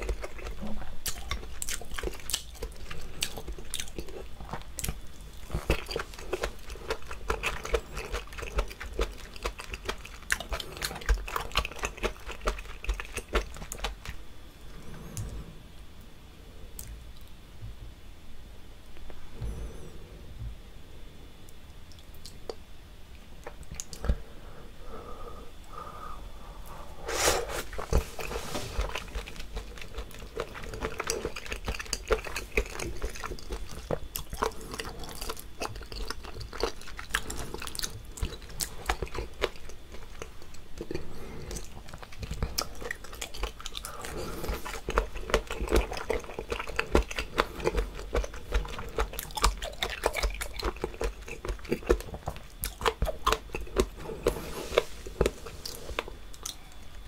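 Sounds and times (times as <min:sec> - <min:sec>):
wet chewing and smacking: 0:00.0 - 0:14.3, 0:27.6 - 0:57.0.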